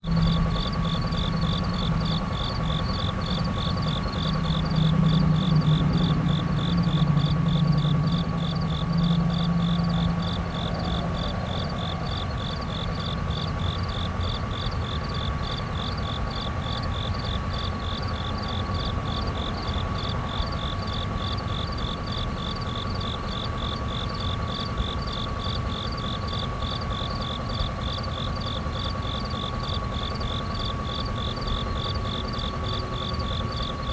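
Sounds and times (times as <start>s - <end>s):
low whirr: 0.0s - 21.8s
insects chirping in pulses: 0.0s - 33.9s.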